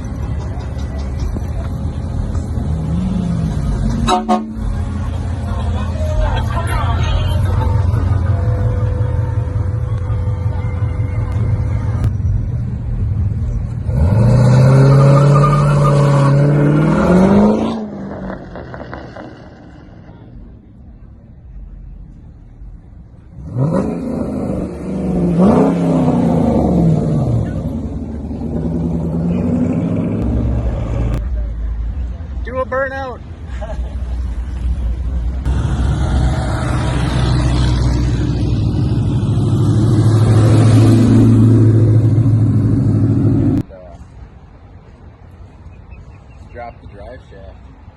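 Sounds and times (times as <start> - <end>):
car engine revving: 6.6 - 20.4, 23.2 - 31.2, 35.4 - 43.6
car engine accelerating: 35.4 - 43.7.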